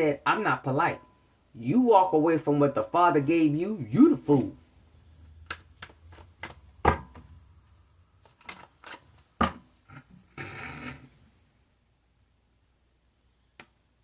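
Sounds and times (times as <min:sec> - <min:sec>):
cards sliding: 0:05.2 - 0:06.8
cards clicking and tapping: 0:05.3 - 0:09.6.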